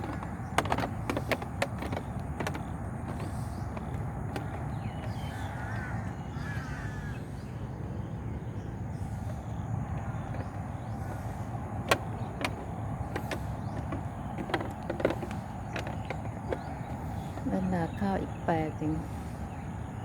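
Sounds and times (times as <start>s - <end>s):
sharp knocks: 0.0s - 5.4s, 11.8s - 17.7s
bird calls: 0.0s - 20.0s
low outdoor rumble: 0.0s - 20.0s.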